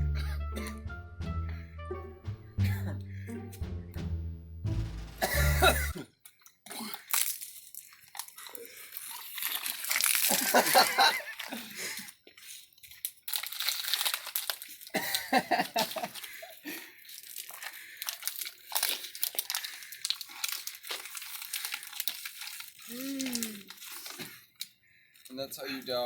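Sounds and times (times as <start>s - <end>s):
plastic bottle crinkling: 6.9s - 25.4s.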